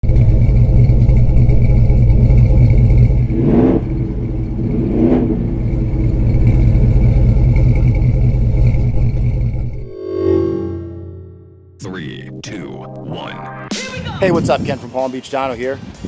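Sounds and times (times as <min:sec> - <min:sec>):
loud vee eight engine running: 0:00.0 - 0:10.0.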